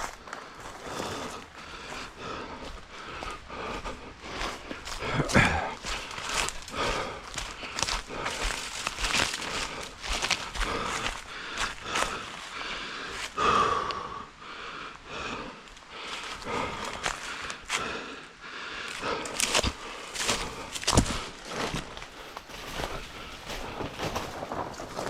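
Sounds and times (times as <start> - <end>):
leaves and brush crunching: 0.0 - 13.4, 16.0 - 17.9, 19.0 - 25.0
heavy breathing: 0.0 - 24.6
running footsteps on forest ground: 0.0 - 25.0.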